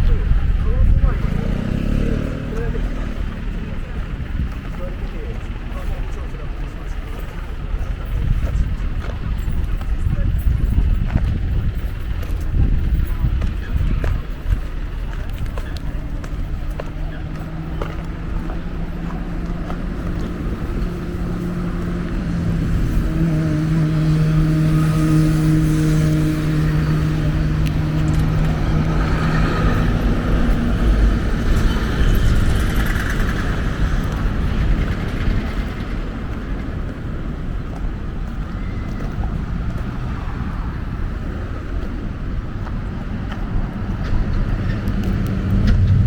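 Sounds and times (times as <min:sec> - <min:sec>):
vehicle engine passing by: 0:00.0 - 0:46.0.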